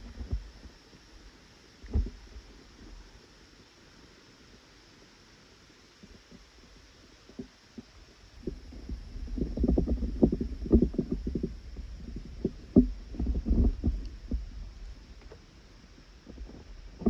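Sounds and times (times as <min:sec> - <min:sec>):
dull knocks and thumps: 0:08.4 - 0:14.5.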